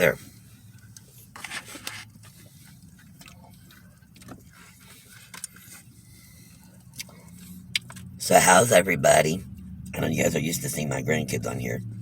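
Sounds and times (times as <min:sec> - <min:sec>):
low steady hum: 0:00.0 - 0:12.0
chewing: 0:02.2 - 0:08.2.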